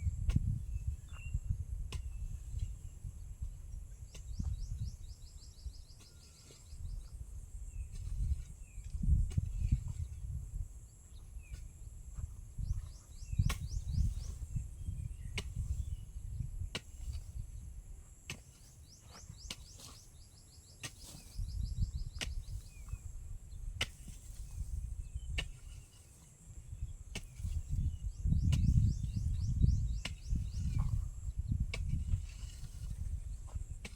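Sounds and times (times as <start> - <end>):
bird chirps: 4.1 - 7.1, 18.8 - 23.0.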